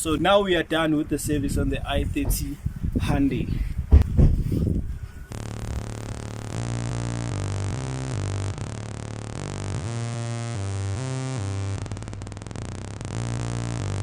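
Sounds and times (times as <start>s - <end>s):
synthesizer background music: 5.3s - 14.0s.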